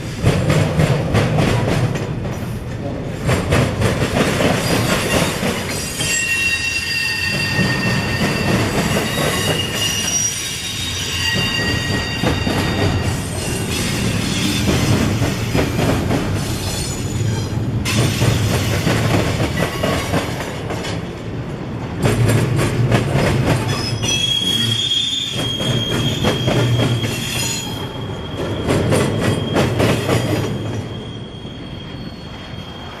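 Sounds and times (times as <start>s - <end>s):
high wheel squeal: 4.6s - 14.9s, 23.7s - 33.0s
train wheels clicking over rail joints: 11.1s - 21.2s, 21.9s - 30.9s.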